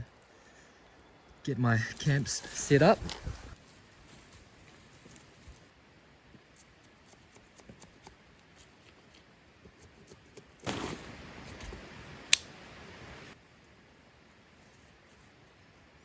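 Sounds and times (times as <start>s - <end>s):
rustling: 1.9s - 5.7s.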